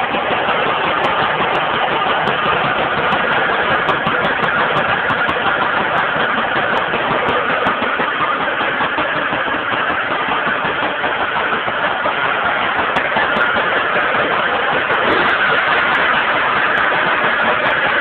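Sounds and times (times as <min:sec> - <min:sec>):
two-stroke engine running: 0:00.0 - 0:18.0.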